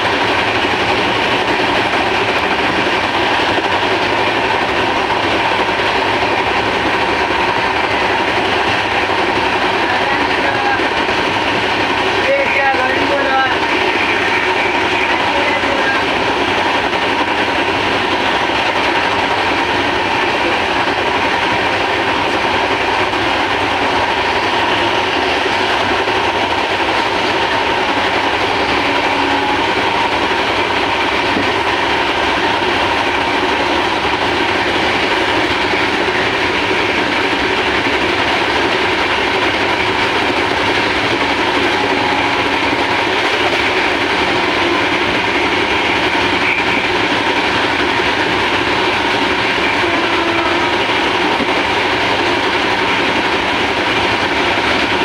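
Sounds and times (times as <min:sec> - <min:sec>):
train wheels rolling over rails: 0:00.0 - 0:55.0.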